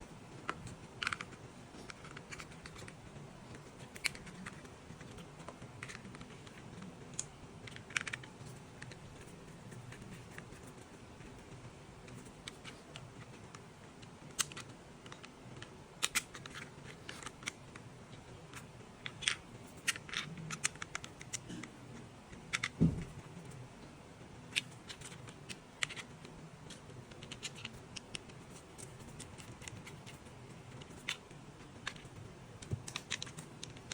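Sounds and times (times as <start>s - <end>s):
plastic toy parts clicking: 0.5s - 2.9s, 3.8s - 9.0s, 14.2s - 17.6s, 18.5s - 21.4s, 22.5s - 23.2s, 24.5s - 26.1s, 26.7s - 33.9s
heavy knock: 22.8s - 23.2s.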